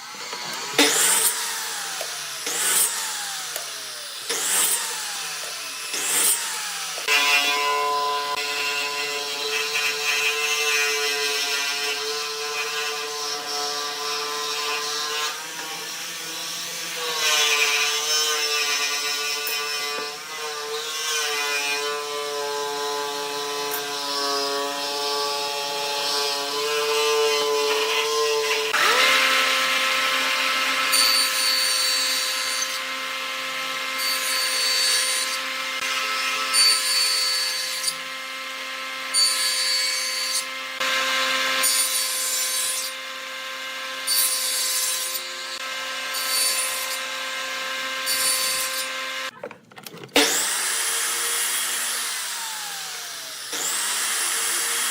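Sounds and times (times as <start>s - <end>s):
power tool motor whine: 0.0s - 20.4s, 25.3s - 34.4s, 45.2s - 54.9s
rasping wood cutting: 0.0s - 54.9s.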